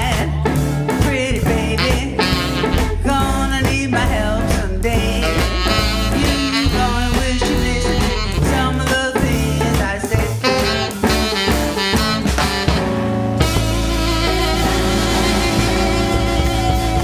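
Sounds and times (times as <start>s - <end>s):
live blues band playing: 0.0s - 17.0s.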